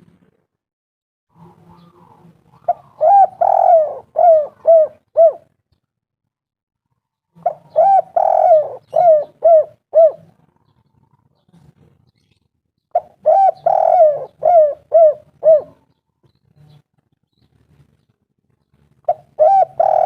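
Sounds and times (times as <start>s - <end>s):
dove cooing: 1.3s - 5.6s, 7.4s - 11.2s, 12.9s - 16.0s, 19.0s - 20.0s.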